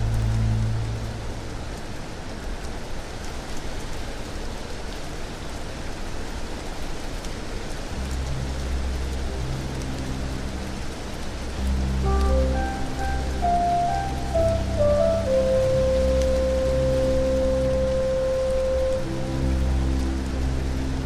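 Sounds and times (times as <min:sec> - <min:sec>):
low music drone: 0:00.0 - 0:02.3, 0:07.9 - 0:21.0
rain drop ticks: 0:00.0 - 0:21.0
steady rain falling: 0:00.0 - 0:21.0.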